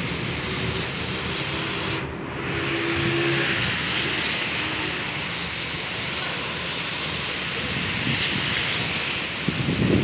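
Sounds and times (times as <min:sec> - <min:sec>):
heavy rain: 0:00.0 - 0:10.0
strong wind in trees: 0:02.0 - 0:10.0.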